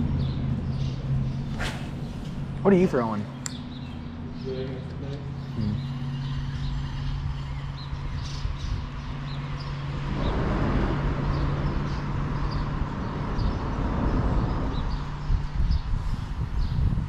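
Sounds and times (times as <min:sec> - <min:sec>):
bird chirping: 0:00.0 - 0:16.0
low hum and rumble: 0:00.0 - 0:17.0
rushing noise: 0:10.0 - 0:12.3.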